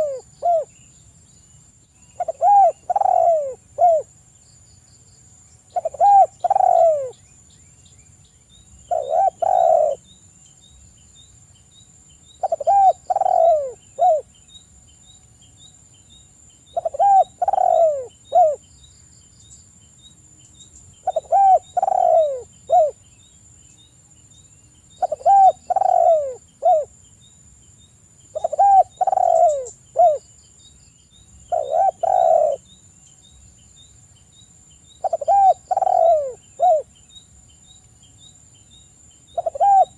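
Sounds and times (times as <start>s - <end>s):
dove cooing: 0.0s - 0.7s, 2.2s - 4.1s, 5.7s - 7.2s, 8.9s - 10.0s, 12.4s - 14.3s, 16.7s - 18.6s, 21.0s - 23.0s, 25.0s - 26.9s, 28.3s - 30.2s, 31.5s - 32.6s, 35.0s - 36.9s, 39.3s - 39.9s.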